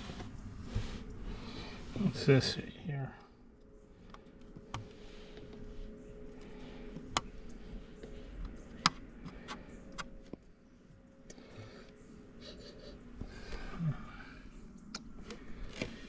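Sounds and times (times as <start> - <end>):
faint steady hum: 0.0 - 16.0
hive parts clicking and tapping: 3.2 - 10.5.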